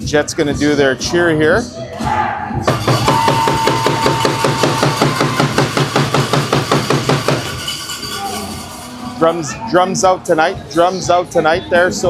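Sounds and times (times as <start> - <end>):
hockey sticks banging on ice: 2.7 - 9.2.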